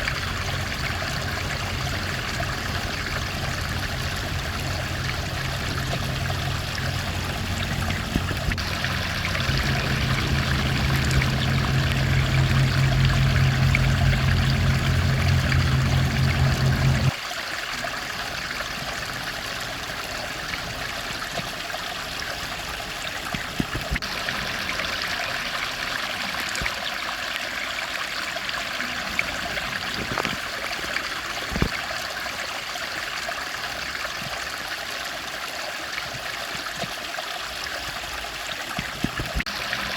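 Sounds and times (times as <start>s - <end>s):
loud low drone: 0.0s - 17.1s
stream flowing: 0.0s - 39.9s.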